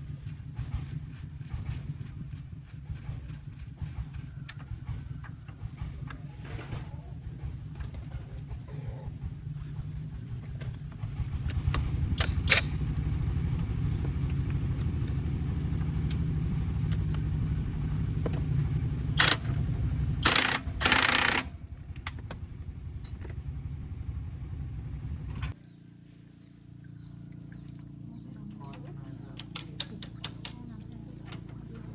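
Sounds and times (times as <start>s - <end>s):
tractor engine chugging: 0.0s - 25.6s
sharp clicks: 19.2s - 19.6s, 20.2s - 22.3s.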